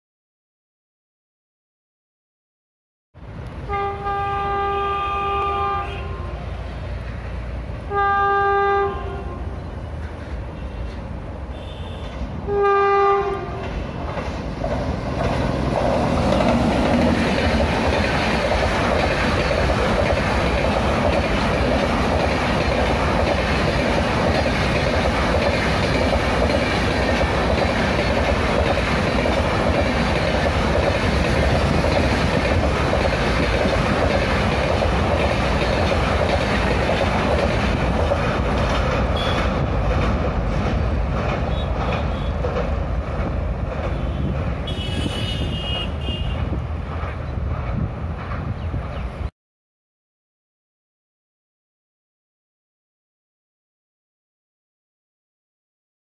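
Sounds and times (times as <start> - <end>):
train rumble and clickety-clack: 3.2 - 49.3
train horn blast: 3.6 - 6.7, 7.8 - 9.6, 11.5 - 14.0, 39.2 - 39.6, 43.9 - 46.6.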